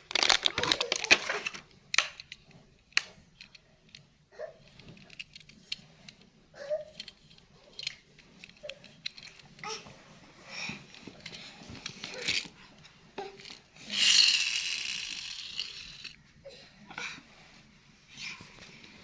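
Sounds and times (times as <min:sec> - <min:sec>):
crinkling and clattering handling: 0:00.0 - 0:16.4.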